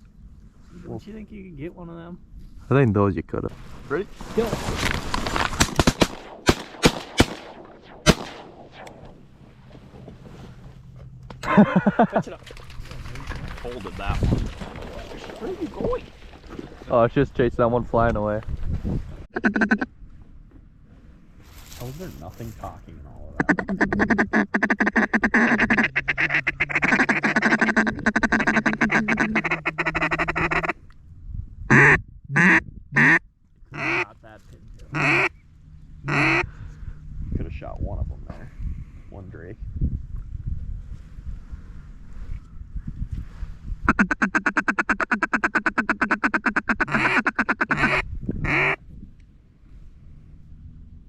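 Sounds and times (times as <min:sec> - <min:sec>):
duck calls chattering: 0:19.3 - 0:19.9, 0:23.4 - 0:30.8, 0:31.7 - 0:34.2, 0:34.9 - 0:35.4, 0:36.0 - 0:36.5, 0:43.9 - 0:48.8.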